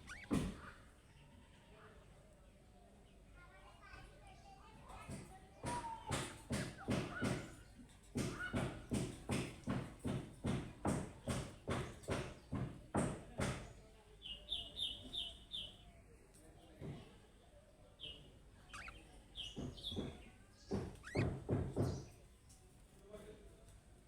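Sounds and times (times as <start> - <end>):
budgerigar chirping: 0.0 - 0.5, 18.7 - 20.1, 20.7 - 22.0
short sharp knocks: 19.5 - 22.1.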